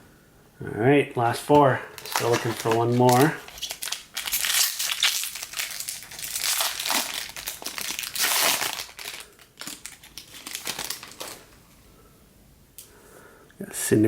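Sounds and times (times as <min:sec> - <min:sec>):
foil wrapper crinkling: 0:01.3 - 0:11.6.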